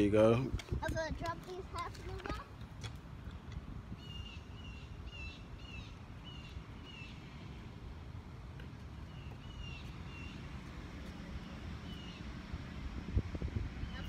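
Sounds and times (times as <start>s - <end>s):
low steady rumble: 7.5s - 14.0s.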